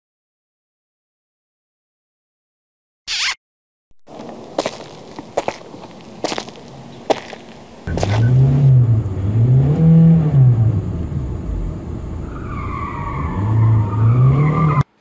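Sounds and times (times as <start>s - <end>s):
high squeal: 3.1s - 3.4s, 12.2s - 14.9s
car engine revving: 7.9s - 14.8s.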